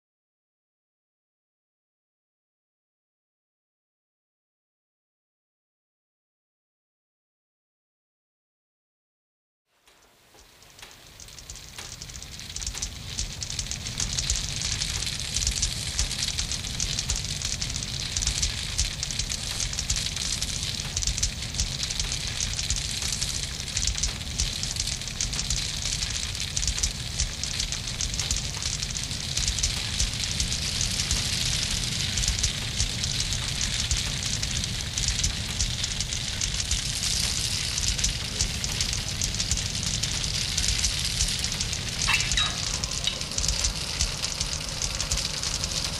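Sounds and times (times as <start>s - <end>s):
wood fire crackling and popping: 9.8s - 45.9s.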